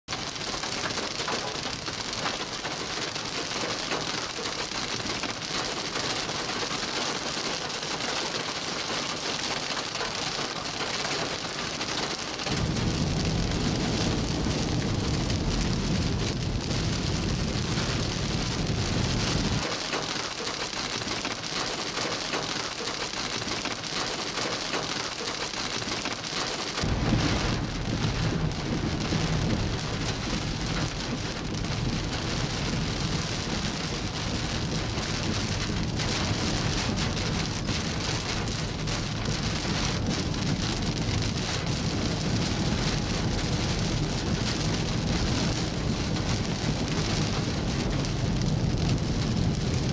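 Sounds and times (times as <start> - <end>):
heavy rain falling: 0.0 - 49.9
low rumble: 12.5 - 19.6, 26.8 - 49.9.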